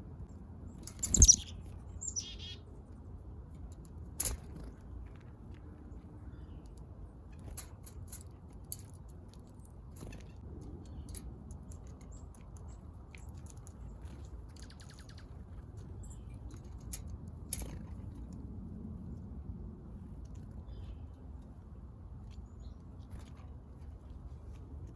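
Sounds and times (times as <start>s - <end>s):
small birds chipping: 0.0s - 3.0s, 3.6s - 18.4s, 19.9s - 24.9s.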